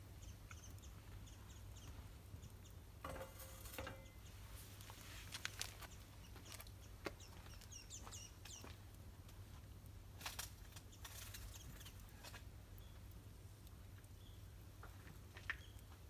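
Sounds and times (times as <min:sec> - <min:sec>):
faint bird chirping: 0:00.0 - 0:02.8, 0:05.7 - 0:08.8, 0:14.1 - 0:14.6.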